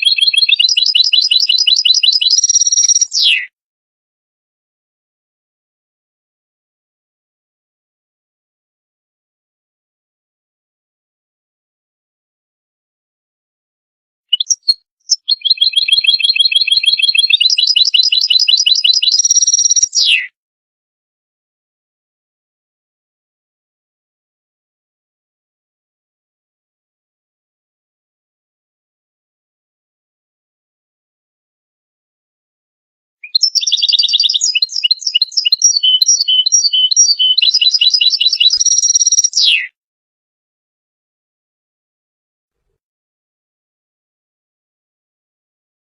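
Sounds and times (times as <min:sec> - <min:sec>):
goldfinch singing: 0:00.0 - 0:03.4, 0:14.3 - 0:20.2, 0:33.2 - 0:39.7
finch twittering song: 0:00.0 - 0:03.5, 0:14.3 - 0:20.3, 0:33.2 - 0:39.7.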